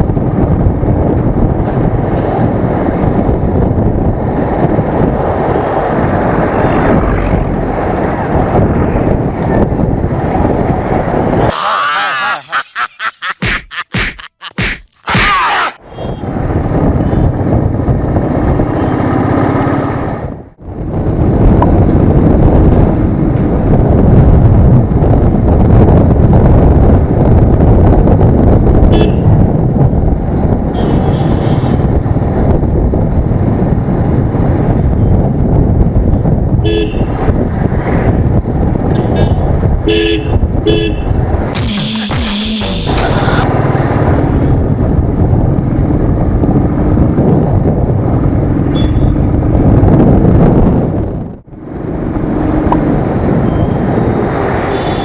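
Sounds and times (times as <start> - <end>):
motorcycle engine and wind rumble: 0.0 - 11.5, 15.8 - 41.6, 42.8 - 55.0
vehicle horns tooting: 28.9 - 29.3, 30.8 - 31.9, 39.0 - 43.4, 48.7 - 49.2, 54.6 - 55.0.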